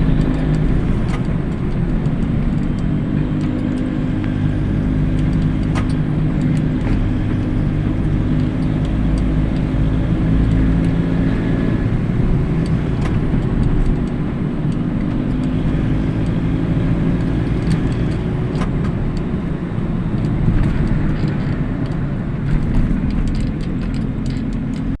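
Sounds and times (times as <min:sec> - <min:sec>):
clicks and rattles: 0:00.0 - 0:11.4, 0:20.0 - 0:25.0
motorcycle engine running: 0:00.0 - 0:25.0.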